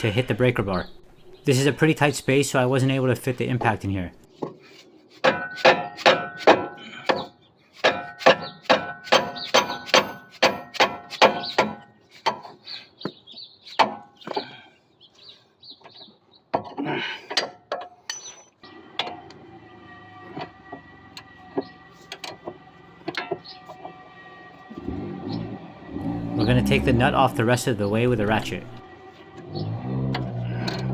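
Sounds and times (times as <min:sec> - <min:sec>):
hammer striking metal bar: 0:05.2 - 0:06.8, 0:07.8 - 0:11.8.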